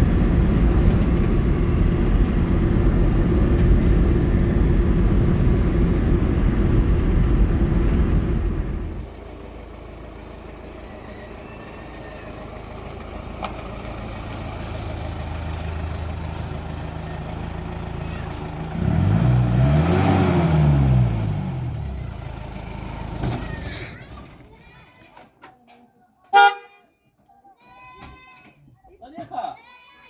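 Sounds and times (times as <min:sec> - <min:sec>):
vehicle passing close: 0:10.7 - 0:24.6.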